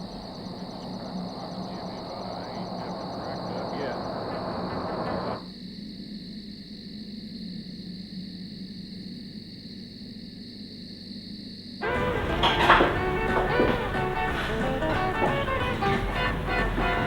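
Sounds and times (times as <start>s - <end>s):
low hum: 0.0s - 5.4s
music: 0.0s - 5.4s, 11.8s - 17.0s.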